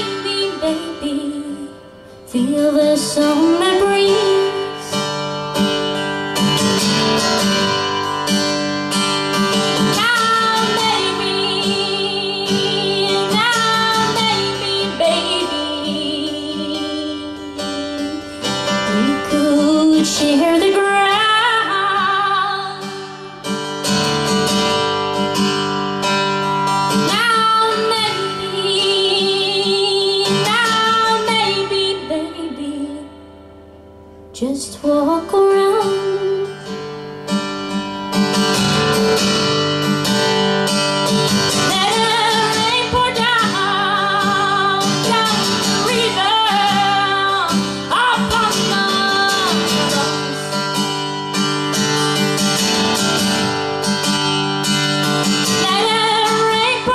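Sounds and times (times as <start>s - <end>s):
woman singing: 0.0s - 5.8s, 9.4s - 23.8s, 26.9s - 33.3s, 34.3s - 37.0s, 41.2s - 51.5s, 54.8s - 56.9s
acoustic guitar: 0.0s - 56.9s.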